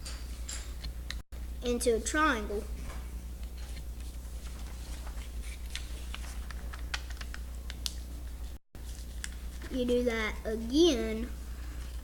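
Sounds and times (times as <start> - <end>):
steady low hum: 0.0 - 12.0
paper being folded and creased: 4.0 - 7.4
paper crackles and rustles: 4.0 - 7.4.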